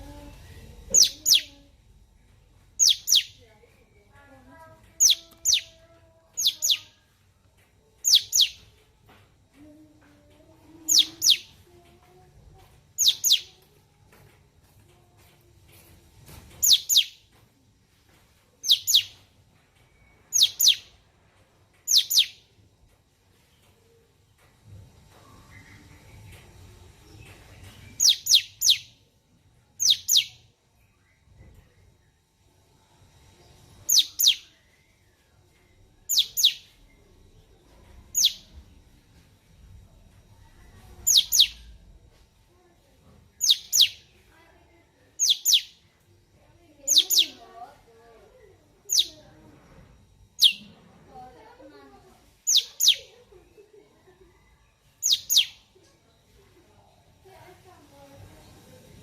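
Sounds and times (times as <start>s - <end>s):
bird whistling calls: 41.1s - 41.7s, 43.4s - 44.0s, 50.4s - 50.7s.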